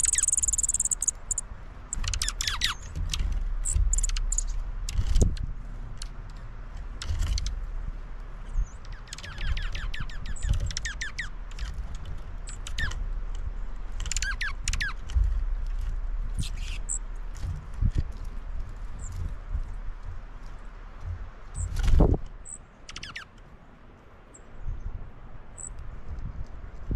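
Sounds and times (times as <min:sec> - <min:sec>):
small birds chirping: 0:00.0 - 0:04.6, 0:08.4 - 0:15.4, 0:16.3 - 0:17.5, 0:21.5 - 0:21.8, 0:22.4 - 0:25.8.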